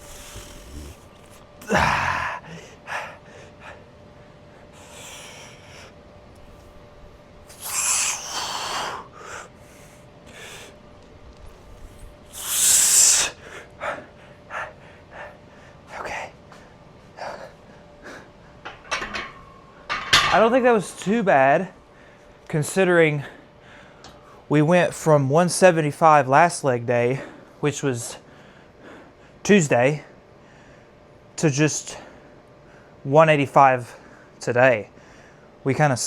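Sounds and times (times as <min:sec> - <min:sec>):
man breathing hard: 0:00.0 - 0:06.8, 0:07.5 - 0:10.8, 0:11.5 - 0:18.6, 0:23.2 - 0:24.5, 0:28.3 - 0:29.4, 0:35.0 - 0:35.5.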